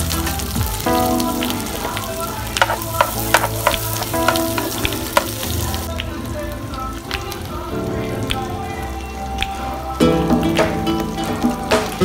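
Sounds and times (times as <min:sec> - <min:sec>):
meat sizzling in hot oil: 0:00.0 - 0:05.9
spatula stirring in pan: 0:02.6 - 0:05.3.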